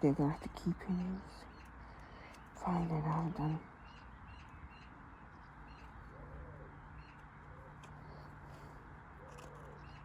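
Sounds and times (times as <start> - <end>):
faint bird cooing and chirps: 5.7 - 8.3, 9.1 - 10.0.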